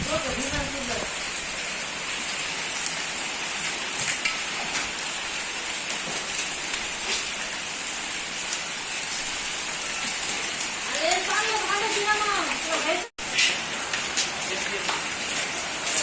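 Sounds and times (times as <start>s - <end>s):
heavy rain hissing: 0.0s - 16.0s
hailstones striking surfaces: 3.6s - 16.0s.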